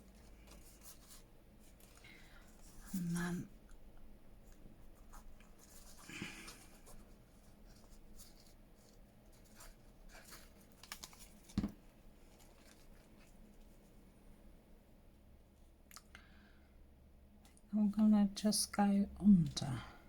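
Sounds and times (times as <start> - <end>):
paper rustling and scraping: 5.5 - 13.4.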